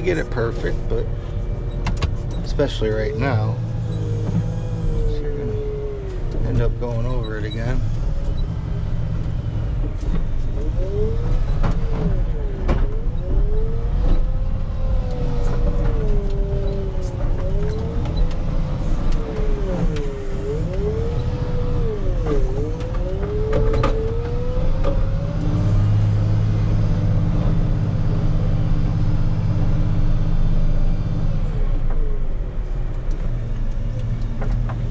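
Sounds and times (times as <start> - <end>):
diesel engine under load: 0.0 - 34.9.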